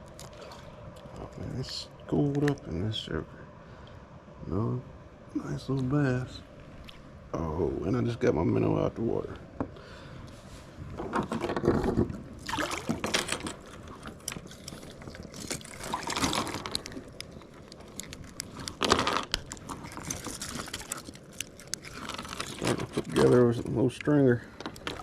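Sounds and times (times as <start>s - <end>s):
water splashes and drips: 12.4s - 13.2s.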